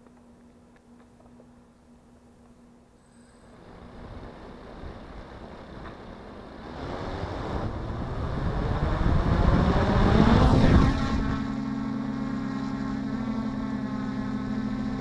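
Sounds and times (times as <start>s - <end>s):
wind on microphone: 6.6s - 11.6s.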